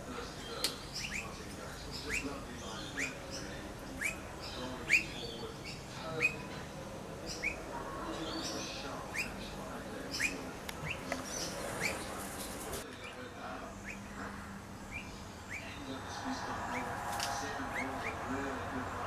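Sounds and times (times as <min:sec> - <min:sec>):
other birds calling: 0:00.0 - 0:19.0.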